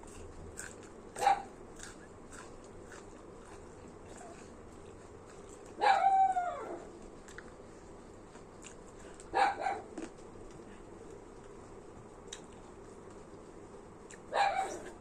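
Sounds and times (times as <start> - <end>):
dog barking: 1.2 - 1.6, 5.8 - 6.9, 9.3 - 10.0, 14.3 - 15.0.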